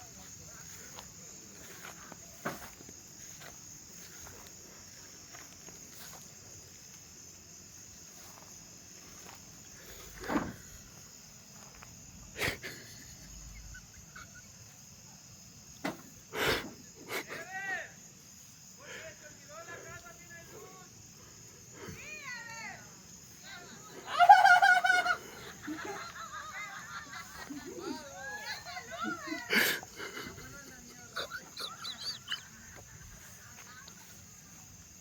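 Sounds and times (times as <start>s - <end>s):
crickets trilling: 0.0s - 35.0s.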